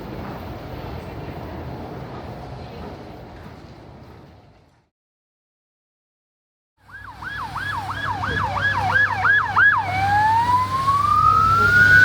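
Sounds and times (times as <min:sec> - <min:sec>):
low rumble of traffic: 0:00.0 - 0:04.9, 0:06.8 - 0:12.0
emergency vehicle siren: 0:06.8 - 0:12.0.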